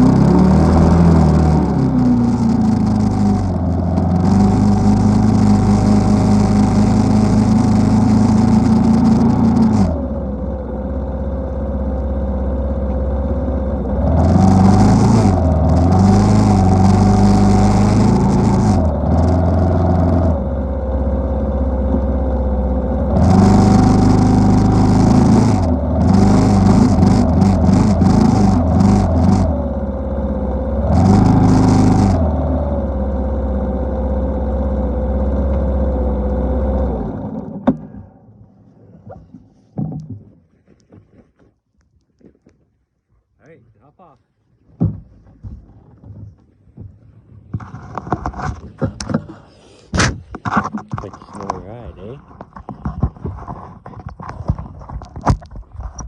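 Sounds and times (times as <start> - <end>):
atv engine revving: 0.0 - 38.2.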